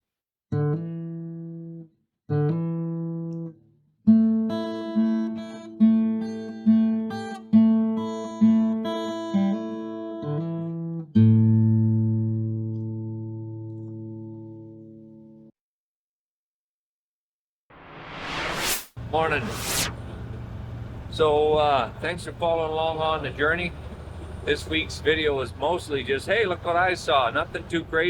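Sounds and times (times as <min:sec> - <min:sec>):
guitar chords and plucked notes: 0:00.6 - 0:15.5.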